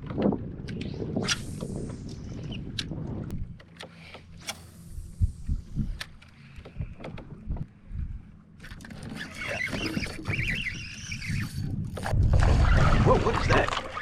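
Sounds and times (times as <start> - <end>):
water rushing and sloshing: 12.0 - 14.0.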